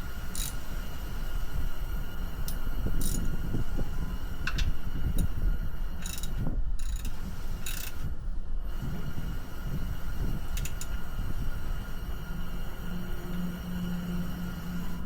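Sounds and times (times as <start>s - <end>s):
wind buffeting microphone: 1.0s - 12.9s.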